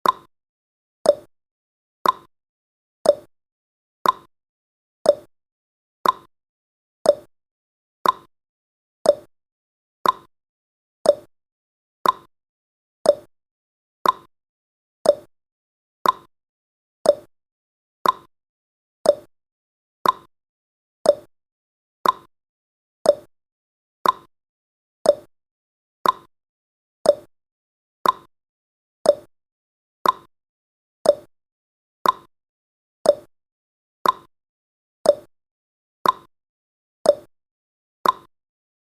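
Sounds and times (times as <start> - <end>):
clock ticking: 2.0 - 2.3, 4.0 - 4.3, 6.0 - 6.3, 8.0 - 8.3, 10.0 - 10.3, 12.0 - 12.3, 14.0 - 14.3, 15.1 - 15.3, 16.0 - 16.3, 18.0 - 18.3, 19.1 - 19.3, 20.0 - 20.3, 21.1 - 21.3, 22.0 - 22.3, 24.0 - 24.3, 26.0 - 26.3, 28.0 - 28.3, 29.1 - 29.3, 30.0 - 30.3, 31.1 - 31.3, 32.0 - 32.3, 33.1 - 33.3, 34.0 - 34.3, 35.1 - 35.3, 36.0 - 36.3, 38.0 - 38.3.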